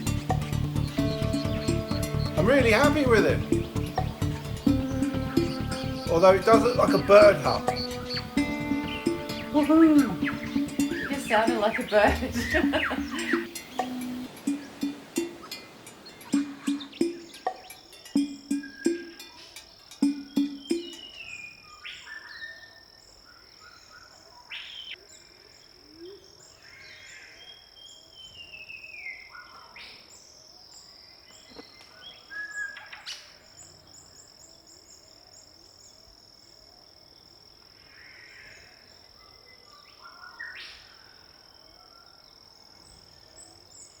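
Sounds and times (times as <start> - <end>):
falling whistled bird calls: 0.0 - 25.0
birds calling: 0.0 - 25.2.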